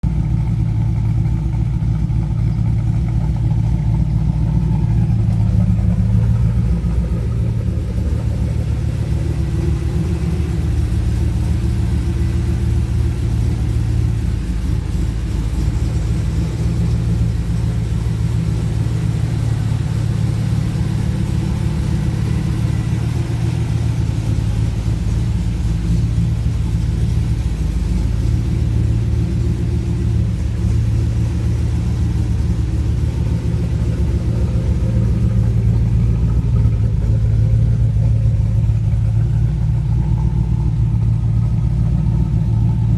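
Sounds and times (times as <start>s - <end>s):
car engine idling: 0.0s - 42.9s.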